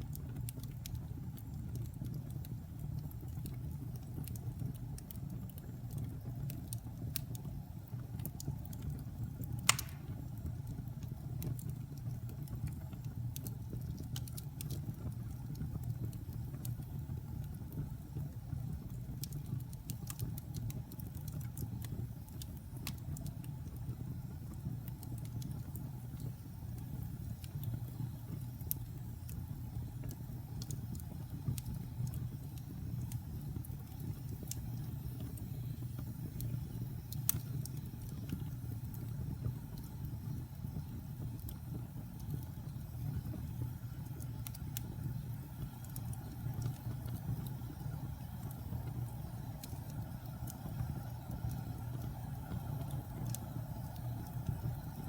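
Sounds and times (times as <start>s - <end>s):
fire crackling: 0.0s - 55.0s
fire rumbling: 0.1s - 55.0s
loud fire pop: 9.6s - 10.3s.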